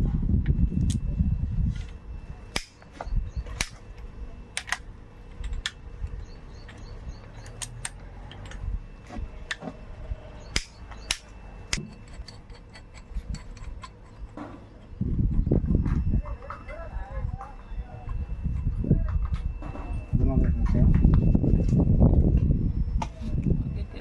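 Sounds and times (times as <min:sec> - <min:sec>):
metallic clicks of hand tools: 0:10.5 - 0:14.4.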